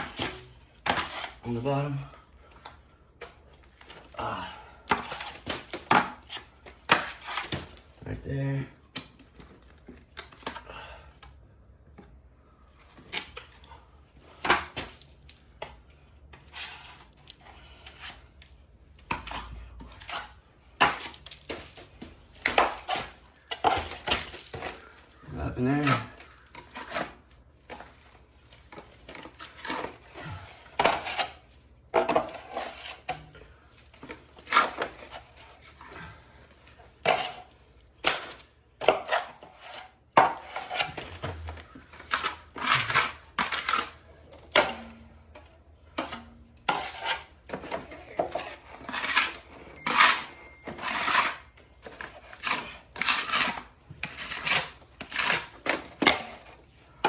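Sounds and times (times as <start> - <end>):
trowel scraping plaster wall: 0.0 - 2.1, 19.1 - 21.6, 22.4 - 27.9, 29.1 - 33.6, 38.8 - 45.3, 45.9 - 57.0.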